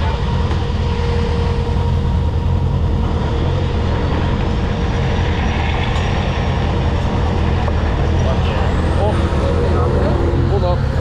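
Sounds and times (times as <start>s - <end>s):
car engine running: 6.8s - 11.0s.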